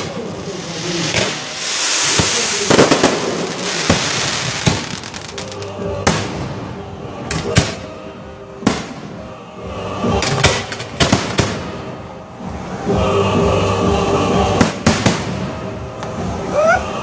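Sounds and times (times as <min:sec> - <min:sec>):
firework shells bursting: 0:00.0 - 0:06.2
background music: 0:00.0 - 0:17.0.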